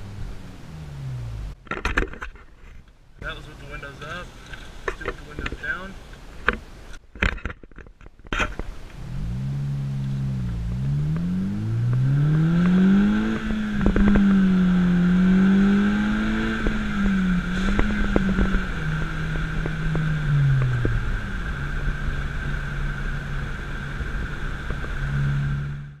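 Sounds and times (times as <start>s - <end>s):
car engine revving: 0.0s - 1.6s, 8.8s - 26.0s.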